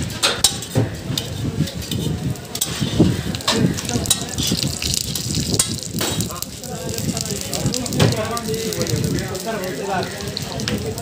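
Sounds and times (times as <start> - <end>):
metal utensils clacking on griddle: 0.0 - 6.6
flatbread sizzling in oil: 1.2 - 11.0.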